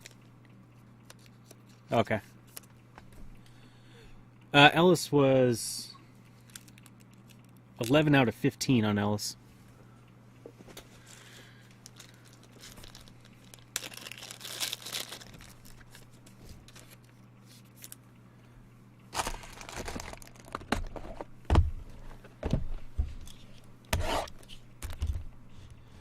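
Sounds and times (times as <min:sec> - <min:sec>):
packaging crinkling and tearing: 0:06.4 - 0:08.0, 0:11.1 - 0:18.0, 0:19.1 - 0:21.1
packaging knocks: 0:19.2 - 0:21.6.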